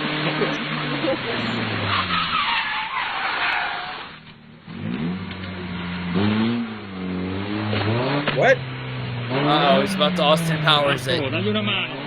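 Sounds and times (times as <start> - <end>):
rally car engine revving: 4.7 - 9.5.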